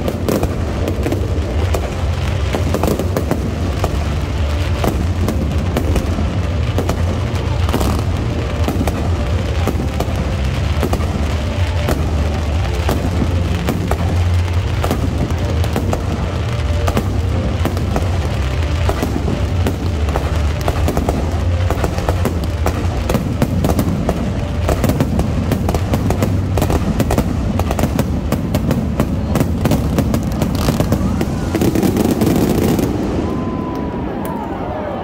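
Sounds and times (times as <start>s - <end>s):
music with low rumble: 0.0s - 34.2s
aerial fireworks bursting: 0.0s - 34.8s.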